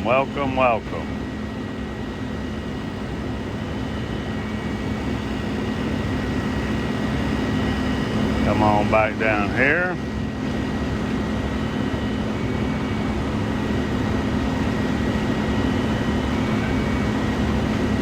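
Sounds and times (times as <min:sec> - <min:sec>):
diesel engine humming: 0:00.0 - 0:14.0
faint high whine: 0:00.0 - 0:18.0.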